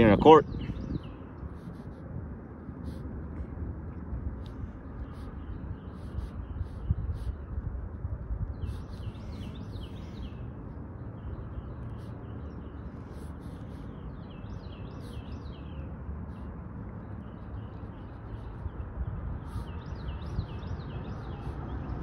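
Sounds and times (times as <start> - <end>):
low outdoor rumble: 0.0 - 22.0
songbird chirping: 8.5 - 22.0.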